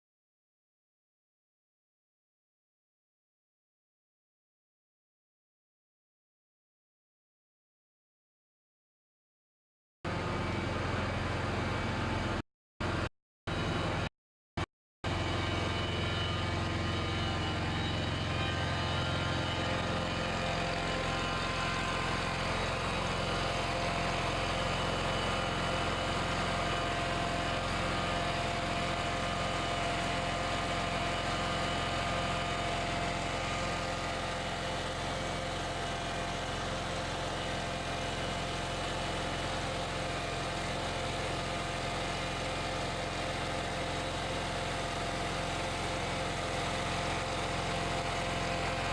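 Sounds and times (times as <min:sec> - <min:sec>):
machine hum with steady tones: 0:15.1 - 0:34.1.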